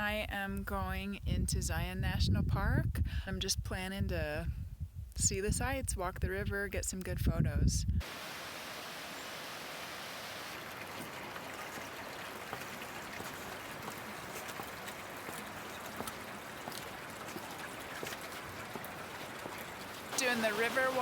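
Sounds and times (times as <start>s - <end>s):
river rushing: 8.0s - 21.0s.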